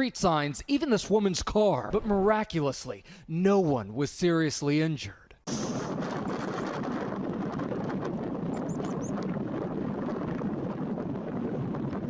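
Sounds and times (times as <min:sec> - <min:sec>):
steady rushing noise: 0:05.5 - 0:12.0.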